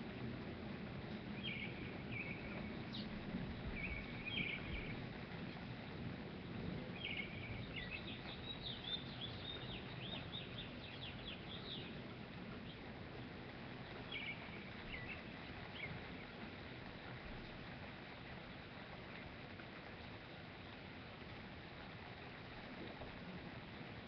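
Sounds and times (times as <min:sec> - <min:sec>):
low outdoor rumble: 0:00.0 - 0:24.0
small birds chirping: 0:01.0 - 0:05.6, 0:06.6 - 0:12.8, 0:13.8 - 0:16.4.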